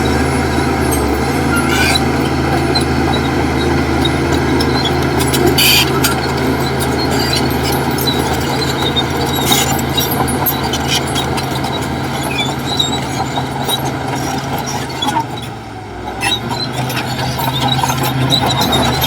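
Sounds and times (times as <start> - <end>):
heavy diesel engine running: 0.0 - 19.0
metallic clicks and squeaks: 0.8 - 19.0.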